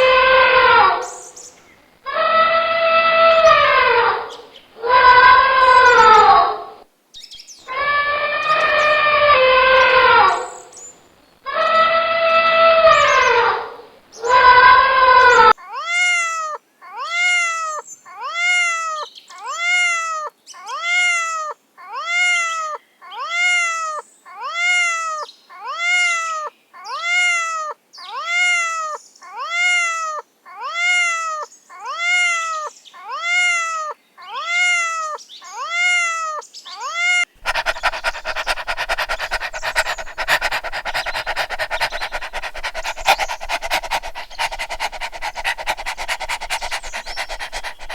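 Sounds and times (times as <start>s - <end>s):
cat meowing: 15.6s - 47.9s
dog panting: 37.4s - 47.9s.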